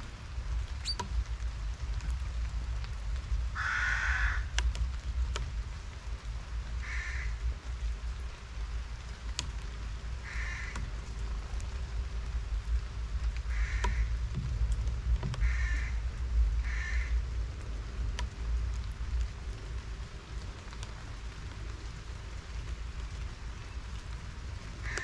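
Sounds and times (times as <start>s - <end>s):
bird cawing: 3.6s - 4.5s, 6.8s - 7.4s, 10.2s - 10.9s, 13.5s - 14.2s, 15.4s - 16.0s, 16.6s - 17.2s
faint sharp ticks: 4.5s - 5.5s
low rumble: 10.9s - 24.9s.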